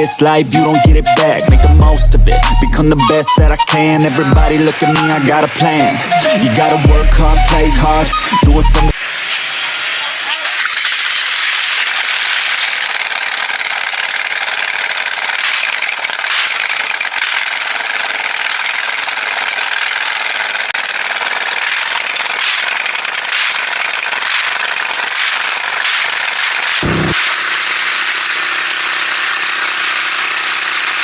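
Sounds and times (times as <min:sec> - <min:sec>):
engine running with rattles: 0:11.6 - 0:31.0.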